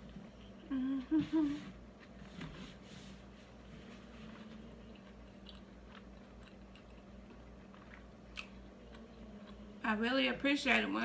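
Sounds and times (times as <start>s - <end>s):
steady low hum: 0.0s - 11.0s
person chewing food: 4.3s - 9.8s.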